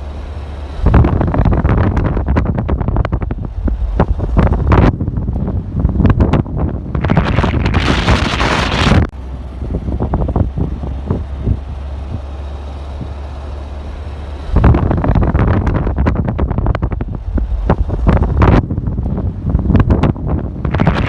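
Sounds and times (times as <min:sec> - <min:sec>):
wind buffeting microphone: 0:00.8 - 0:13.4, 0:14.4 - 0:21.0.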